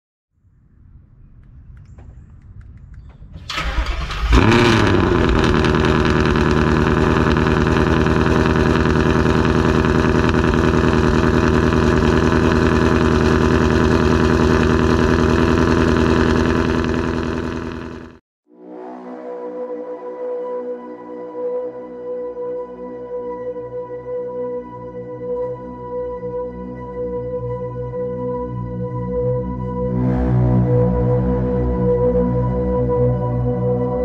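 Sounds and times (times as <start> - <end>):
car engine starting and idling: 3.1 - 18.2.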